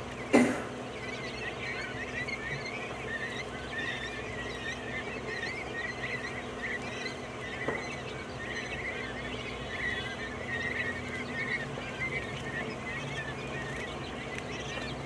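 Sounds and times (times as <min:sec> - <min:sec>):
quail chirping: 0:00.0 - 0:15.0.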